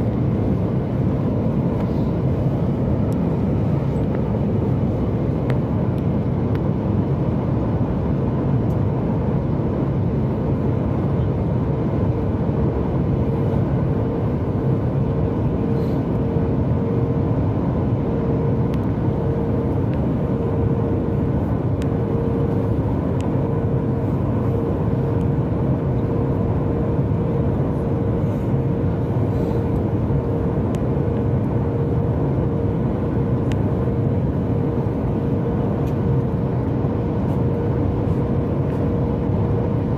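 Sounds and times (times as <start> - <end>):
faint steady hum: 0.0 - 39.9
airplane cabin rush: 19.2 - 39.9.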